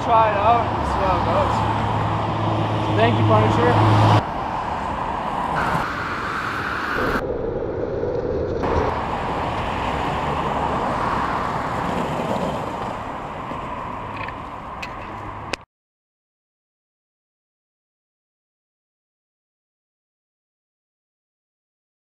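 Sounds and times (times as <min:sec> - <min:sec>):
road traffic rush: 0:00.0 - 0:15.7.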